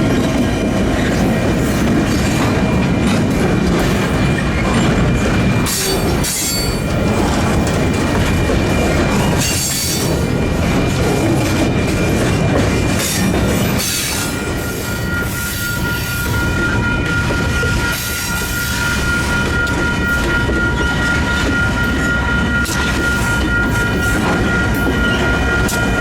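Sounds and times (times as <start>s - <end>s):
wheels clacking over rail joints: 0.0s - 15.4s
high wheel squeal: 3.9s - 26.0s.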